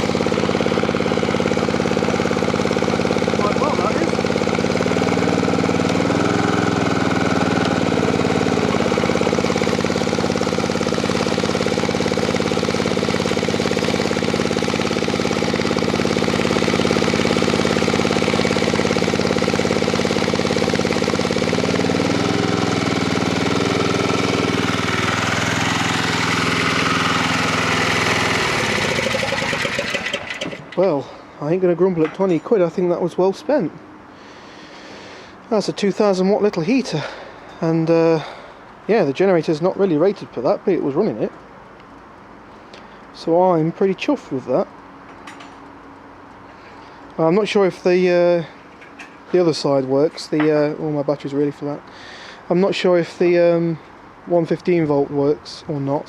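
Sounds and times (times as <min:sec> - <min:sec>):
portable generator engine running: 0:00.0 - 0:31.7.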